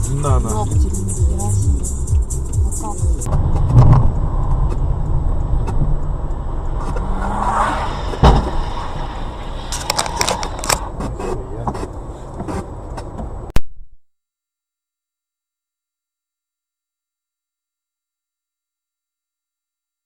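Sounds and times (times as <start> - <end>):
car running low rumble: 0.0 - 13.5.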